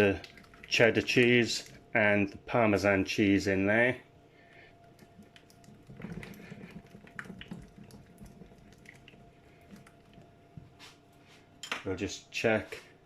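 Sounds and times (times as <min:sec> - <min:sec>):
faint steady hum: 0:00.0 - 0:13.0
sauce squelching in a pan: 0:04.7 - 0:11.0.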